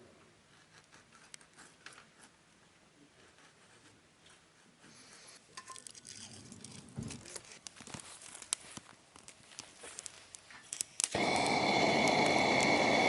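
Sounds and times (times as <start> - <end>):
faint rustling and crinkling: 0.5 - 11.1.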